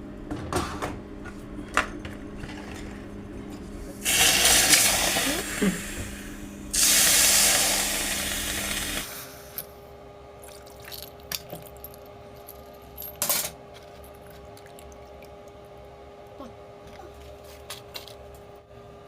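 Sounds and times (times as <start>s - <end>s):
loud hiss: 4.0s - 9.5s
low steady hum: 8.0s - 19.0s.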